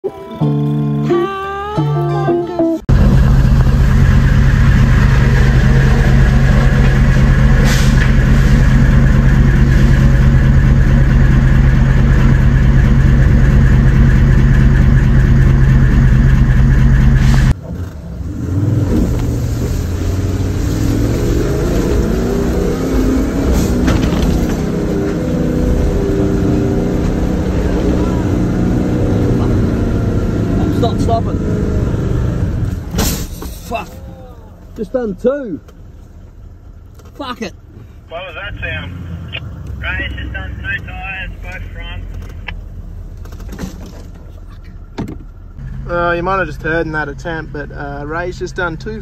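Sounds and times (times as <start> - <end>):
engine running in low gear: 2.9 - 33.0, 34.1 - 49.0
engine revving: 2.9 - 33.2, 38.1 - 42.6.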